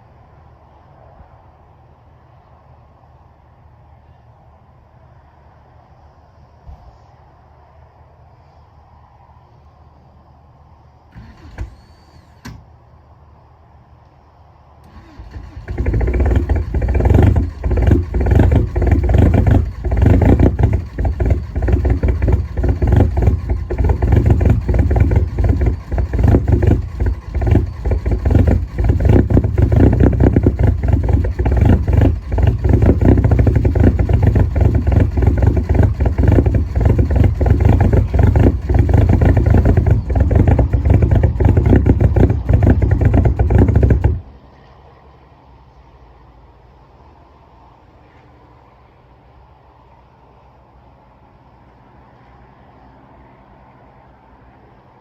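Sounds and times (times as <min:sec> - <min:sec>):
diesel engine clattering: 0:14.8 - 0:44.7.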